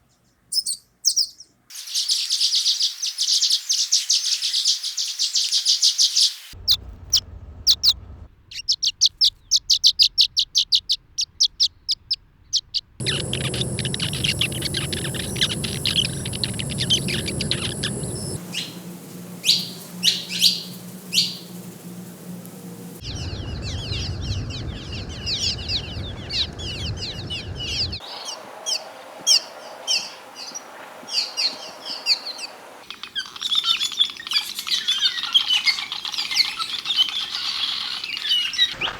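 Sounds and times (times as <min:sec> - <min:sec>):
swallows chirping: 0:07.7 - 0:38.8.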